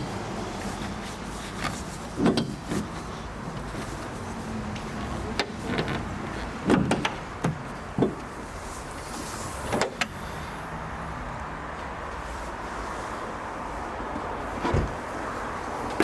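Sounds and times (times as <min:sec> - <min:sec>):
clicks and clunks from car: 0:00.8 - 0:10.2, 0:14.2 - 0:15.2.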